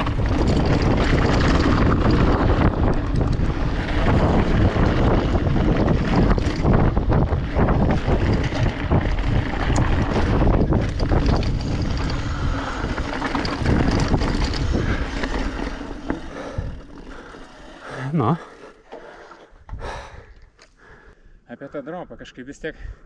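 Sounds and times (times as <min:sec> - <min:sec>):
wind buffeting microphone: 0:00.0 - 0:18.4
bike rattling over rough ground: 0:00.0 - 0:20.2.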